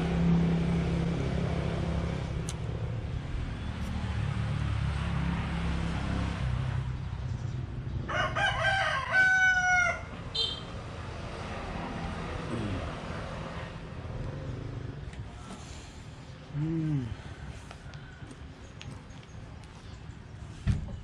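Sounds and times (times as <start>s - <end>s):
rooster crowing: 8.1s - 10.2s.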